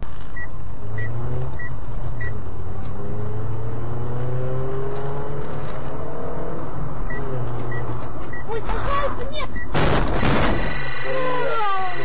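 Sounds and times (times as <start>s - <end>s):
road noise: 0.0s - 12.0s
short high beep: 10.5s - 12.0s.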